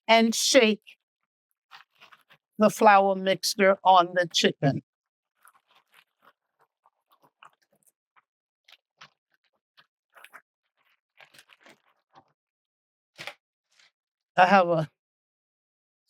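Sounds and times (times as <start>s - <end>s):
plastic bag crinkling: 10.2s - 12.2s.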